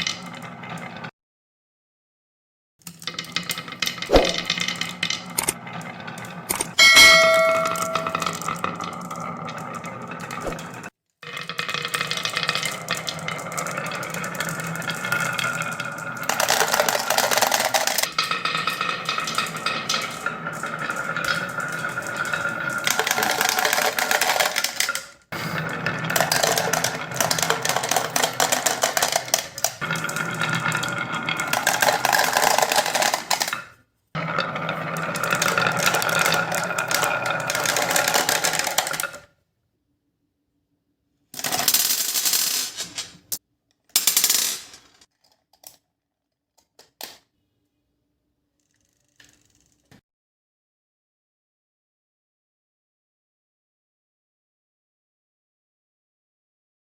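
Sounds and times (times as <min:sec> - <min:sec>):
marbles rattling down wooden track: 0:02.9 - 0:39.3, 0:41.4 - 0:43.1, 0:43.9 - 0:45.0
rolling ringing hum: 0:06.8 - 0:08.5.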